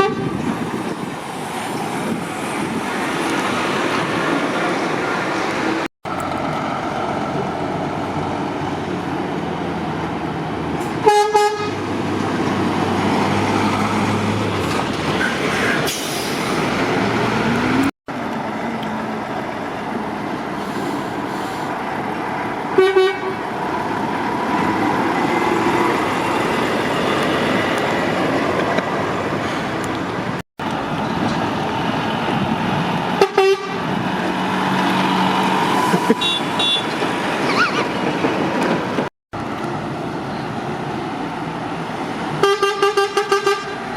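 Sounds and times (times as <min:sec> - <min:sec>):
motorway traffic noise: 0:00.0 - 0:43.9
car horn toot: 0:36.1 - 0:36.9.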